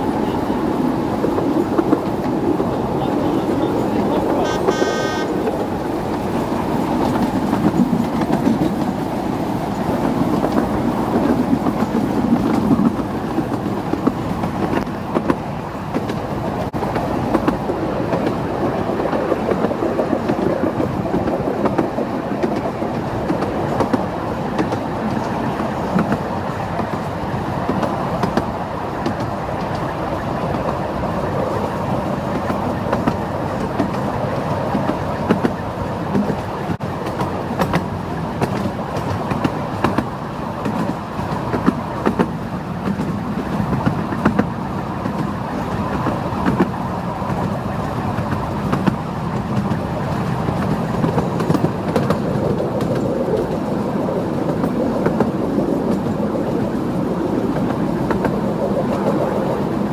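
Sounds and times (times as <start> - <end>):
train wheels rumbling on rail: 0.0 - 59.9
clicks over rail joints: 32.2 - 53.8.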